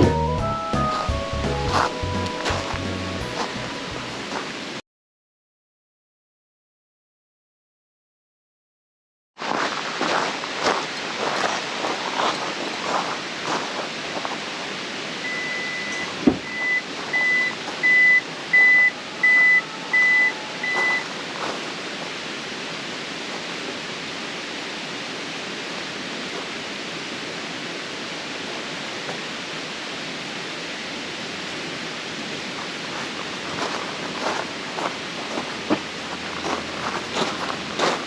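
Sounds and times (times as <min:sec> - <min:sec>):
steady rushing hiss: 0:00.0 - 0:04.8, 0:16.2 - 0:38.0
electronic beeps: 0:15.3 - 0:21.1.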